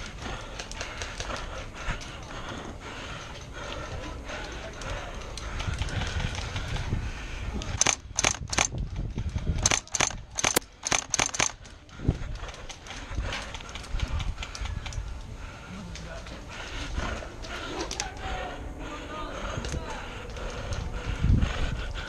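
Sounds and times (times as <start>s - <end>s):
running footsteps: 0.0s - 18.5s
airsoft gun snaps: 7.8s - 8.8s, 9.6s - 11.6s.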